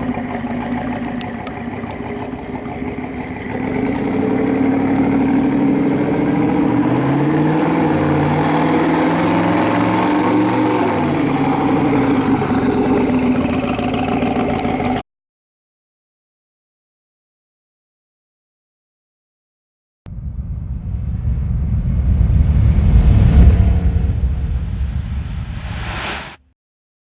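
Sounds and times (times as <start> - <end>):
car engine running: 0.0 - 15.0, 20.1 - 25.6.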